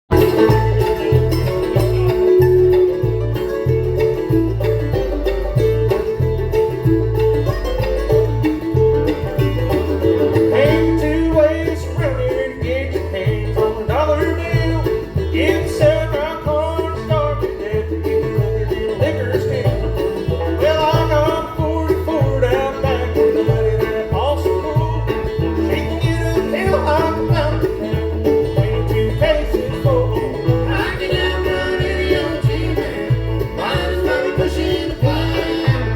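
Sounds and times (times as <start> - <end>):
banjo rolling: 0.0 - 35.9
bluegrass band playing: 0.1 - 35.9
guitar: 0.1 - 35.9.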